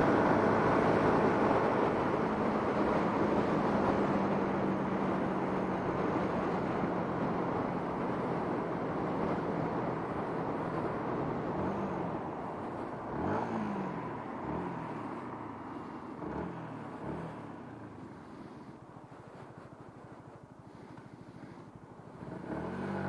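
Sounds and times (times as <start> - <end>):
wind and road rush on microphone: 0.0 - 23.0
motorcycle engine revving: 12.8 - 15.2, 15.8 - 18.6, 21.2 - 23.0.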